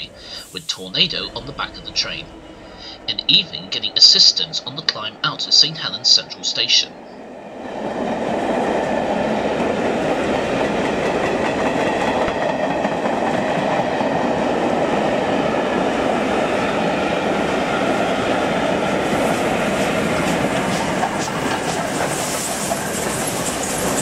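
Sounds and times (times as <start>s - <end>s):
train wheels rumbling on rail: 0.0s - 24.0s
sharp clicks of steam locomotive: 19.7s - 24.0s.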